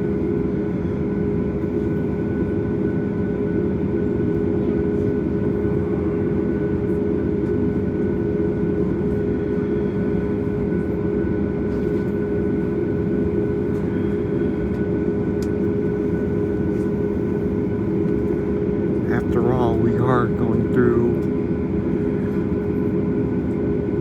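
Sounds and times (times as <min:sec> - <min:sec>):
airliner cabin rumble: 0:11.7 - 0:23.9.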